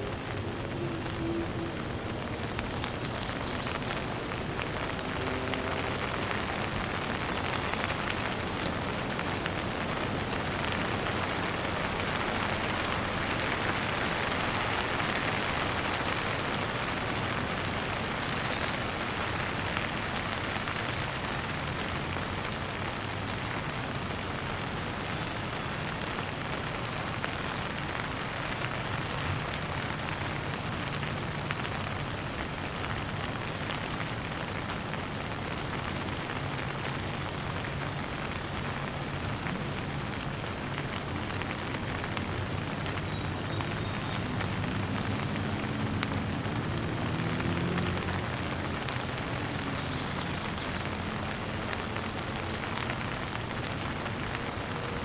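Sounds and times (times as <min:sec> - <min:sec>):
rain pattering: 0:00.0 - 0:55.0
bird chirping: 0:17.5 - 0:18.8.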